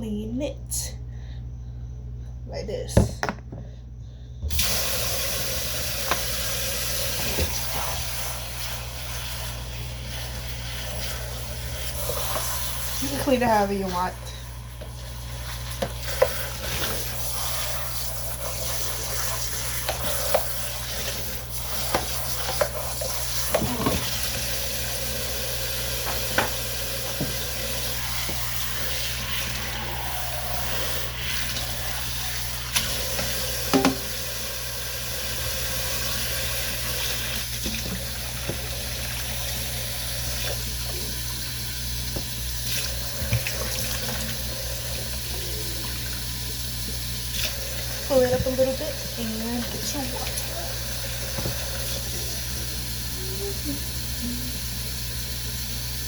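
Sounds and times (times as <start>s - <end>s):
tap running into sink: 6.0s - 6.4s, 26.0s - 28.6s, 32.7s - 34.3s, 37.6s - 38.9s, 42.1s - 44.3s, 46.9s - 48.8s, 51.2s - 52.0s
sharp knocks: 33.7s - 34.1s.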